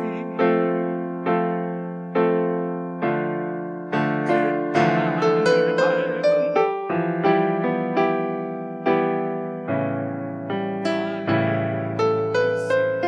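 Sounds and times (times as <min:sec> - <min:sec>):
solo piano playing hymn melody: 0:00.0 - 0:13.0.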